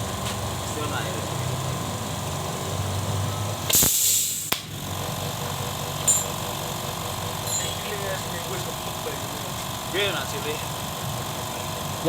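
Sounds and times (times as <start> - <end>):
air compressor humming: 0.0 - 12.0
compressed air hiss: 3.7 - 4.6.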